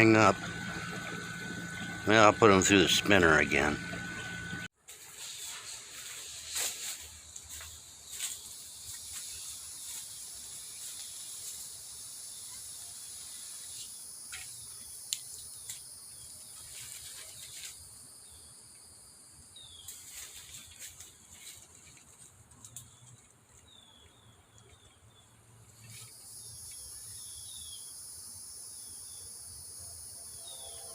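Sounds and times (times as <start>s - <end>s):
faint low hum: 0.0s - 4.7s
insects trilling: 0.0s - 4.7s, 5.3s - 30.9s.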